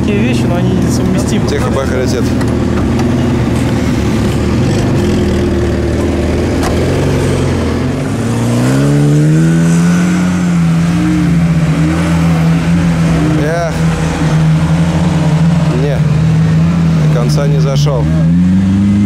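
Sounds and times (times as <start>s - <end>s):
car engine pulling under load: 0.0s - 19.0s.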